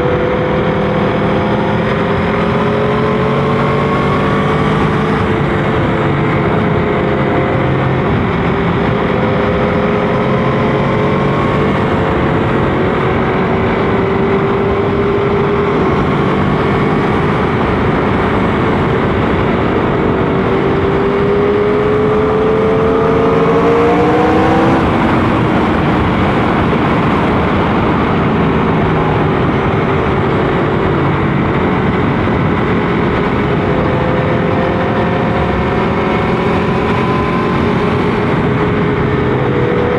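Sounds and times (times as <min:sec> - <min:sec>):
motorcycle engine: 0:00.0 - 0:39.9
rushing noise: 0:14.6 - 0:39.9.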